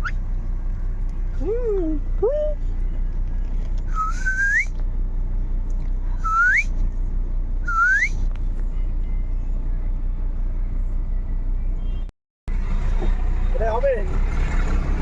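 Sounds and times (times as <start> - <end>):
car cabin rumble: 0.0 - 11.9.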